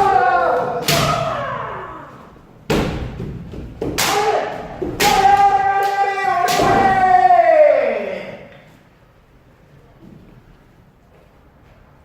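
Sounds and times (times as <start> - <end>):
fencers shouting: 0.0 - 2.3, 4.0 - 8.5.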